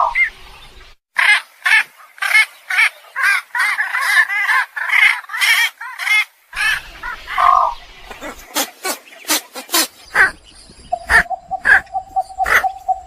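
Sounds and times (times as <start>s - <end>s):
poultry squawking: 1.2s - 10.4s, 11.0s - 13.0s.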